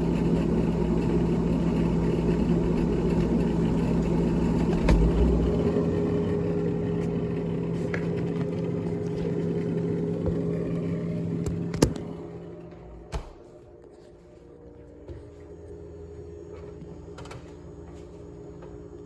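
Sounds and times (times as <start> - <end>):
motor humming: 1.1 - 13.6.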